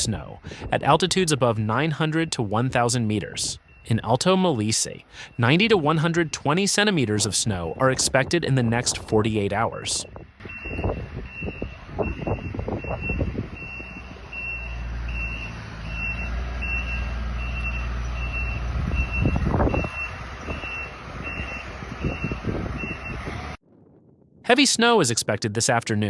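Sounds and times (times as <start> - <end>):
reversing alarm beeping: 0.6 - 9.1, 10.0 - 23.3.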